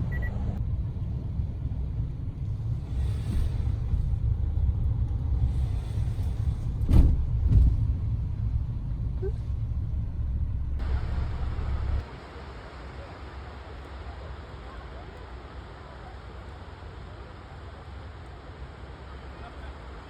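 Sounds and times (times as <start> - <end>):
steady low rumble: 0.0 - 12.1.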